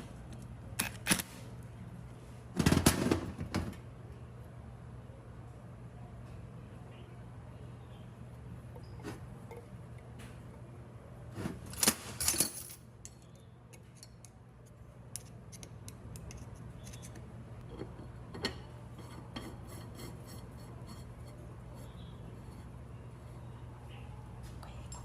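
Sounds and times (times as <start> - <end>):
small metal parts clinking: 11.7 - 14.3.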